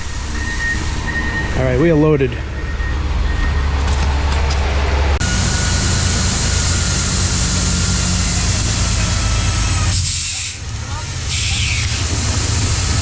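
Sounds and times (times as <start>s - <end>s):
heavy engine rumbling: 0.0s - 13.0s
loud rushing hiss: 9.9s - 13.0s.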